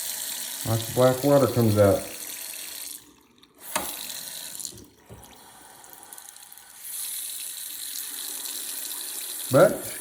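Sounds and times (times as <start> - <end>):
faucet water running into sink: 0.0 - 10.0.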